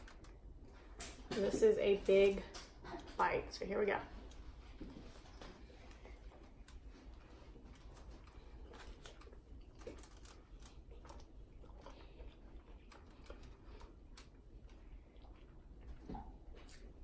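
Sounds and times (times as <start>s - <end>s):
mouth chewing food: 4.2s - 17.0s.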